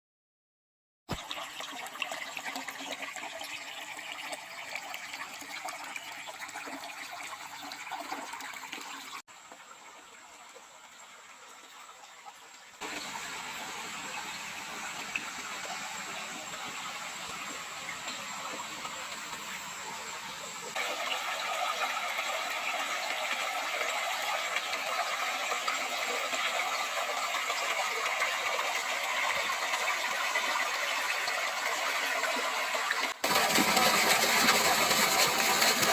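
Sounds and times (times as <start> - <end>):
rushing water: 12.8 - 35.9.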